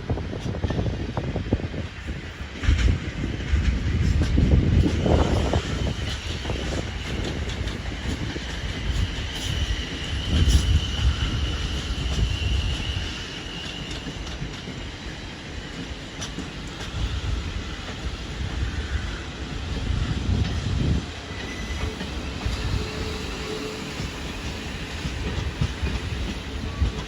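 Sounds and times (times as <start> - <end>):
train rumbling on rails: 0.0 - 27.0
high wheel squeal: 8.8 - 14.2, 21.3 - 25.0.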